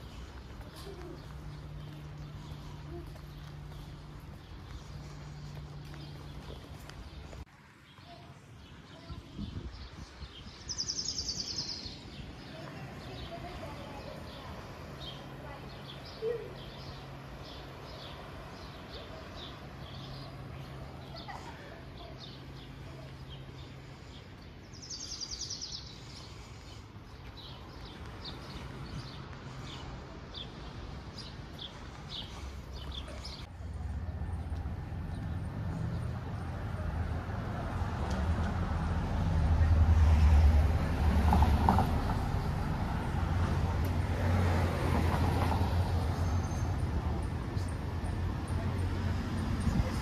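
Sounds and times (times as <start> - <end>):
small birds chirping: 0.0 - 36.9
outdoor background noise: 0.0 - 50.0.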